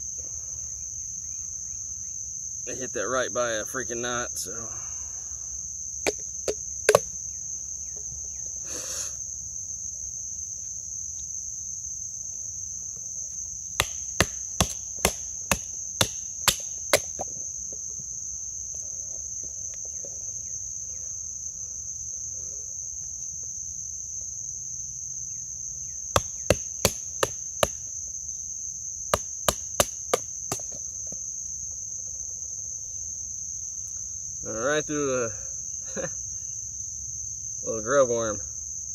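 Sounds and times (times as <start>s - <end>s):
insects droning: 0.0s - 38.9s
baton striking knife spine: 6.9s - 7.1s, 13.8s - 17.2s.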